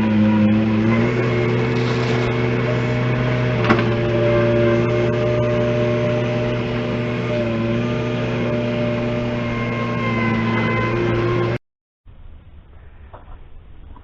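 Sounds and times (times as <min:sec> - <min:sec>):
engine running steadily: 0:00.0 - 0:11.6.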